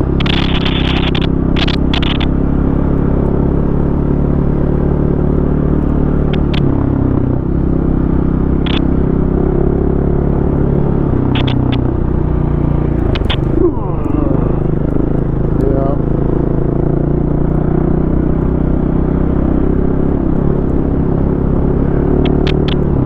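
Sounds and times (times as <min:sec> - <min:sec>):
dirt bike engine: 0:00.0 - 0:03.4, 0:08.2 - 0:18.0.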